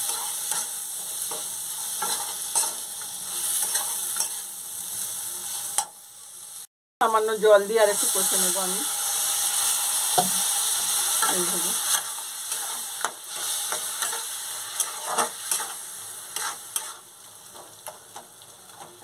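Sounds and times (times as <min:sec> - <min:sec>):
metal spatula scraping pan: 0:00.0 - 0:04.5, 0:11.2 - 0:17.1
masala sizzling in hot oil: 0:00.0 - 0:19.0.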